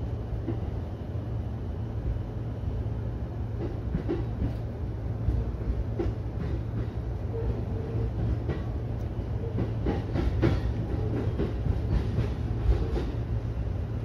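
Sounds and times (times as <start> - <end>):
train wheels rumbling on rails: 0.0 - 14.0
wheels clacking over rail joints: 3.6 - 13.3.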